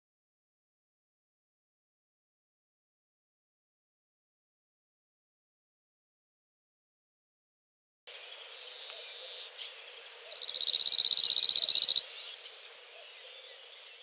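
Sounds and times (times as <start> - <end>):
birds chirping and singing: 8.1 - 14.0.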